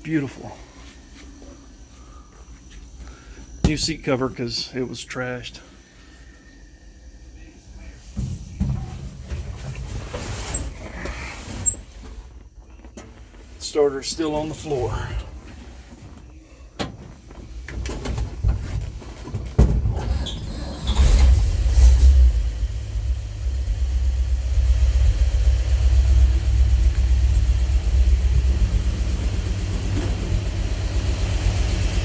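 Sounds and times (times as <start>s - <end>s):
pickup engine starting and idling: 19.6s - 32.0s.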